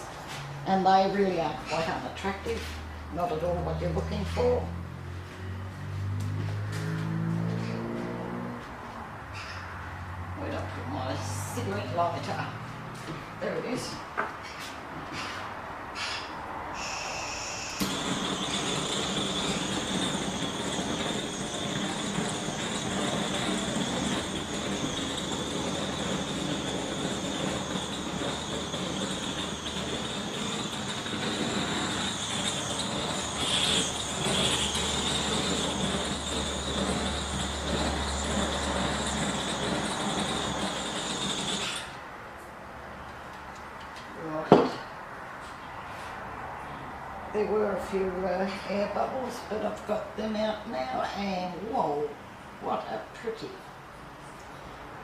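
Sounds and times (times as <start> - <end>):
butane torch hissing: 16.7 - 42.0.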